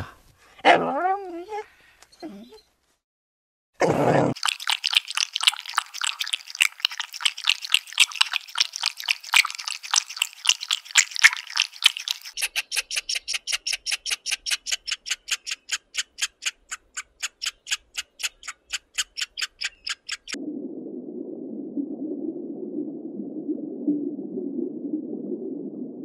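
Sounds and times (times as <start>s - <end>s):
sharp clicking animal calls: 10.9s - 20.4s
animal chattering chirps: 12.4s - 20.4s.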